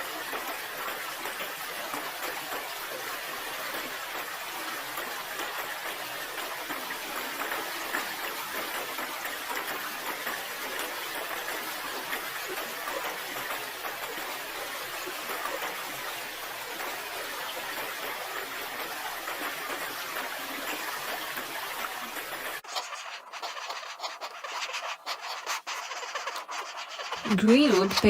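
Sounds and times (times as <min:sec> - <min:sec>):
light clicks and scratches: 0:16.8 - 0:28.0.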